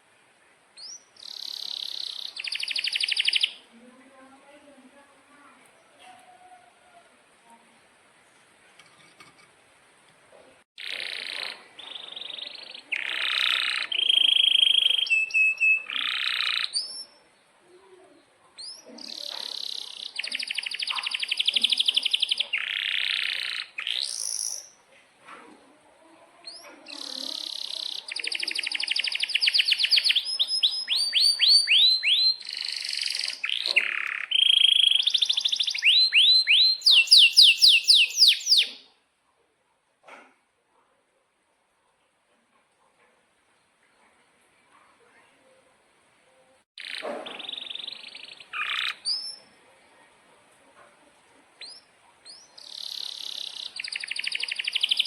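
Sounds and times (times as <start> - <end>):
canary singing trills: 0.8 - 3.8, 10.8 - 17.9, 18.6 - 24.8, 26.4 - 39.0, 46.8 - 49.6, 51.6 - 55.0.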